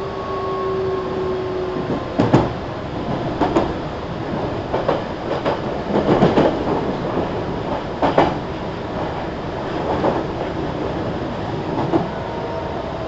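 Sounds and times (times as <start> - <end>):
electric train rumbling: 0.0 - 13.0
wheels clacking over rail joints: 1.8 - 12.1.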